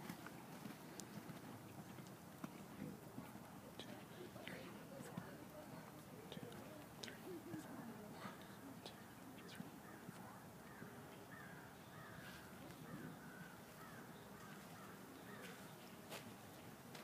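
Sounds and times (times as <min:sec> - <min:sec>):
quiet outdoor ambience: 0:00.0 - 0:17.0
faint wavy bird calls: 0:08.3 - 0:16.0.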